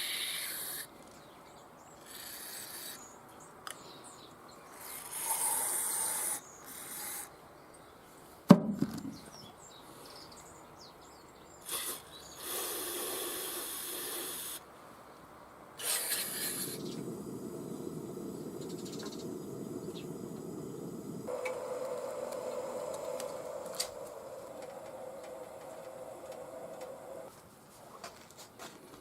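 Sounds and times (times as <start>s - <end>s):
sharp knock: 8.5s - 9.2s.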